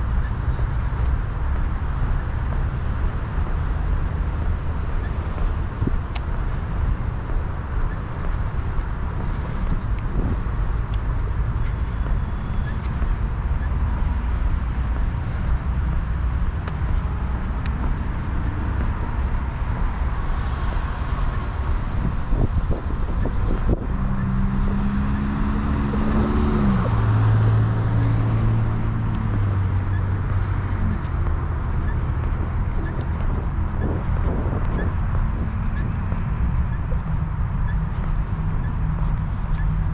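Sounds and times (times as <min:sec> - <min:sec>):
road traffic rumble: 0:00.0 - 0:39.9
vehicle engine hum: 0:00.0 - 0:39.9.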